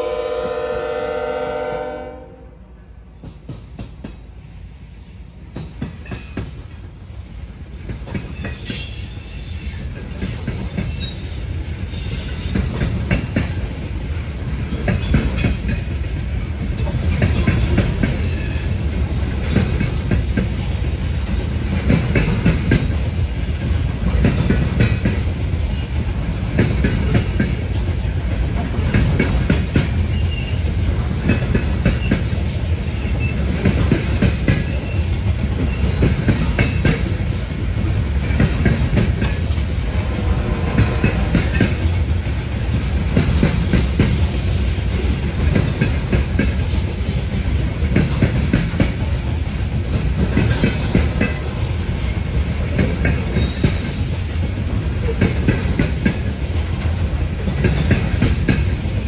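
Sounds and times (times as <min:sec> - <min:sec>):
locomotive air horn: 0:00.0 - 0:02.6, 0:40.0 - 0:41.6
train wheels clacking on rails: 0:03.1 - 0:59.0.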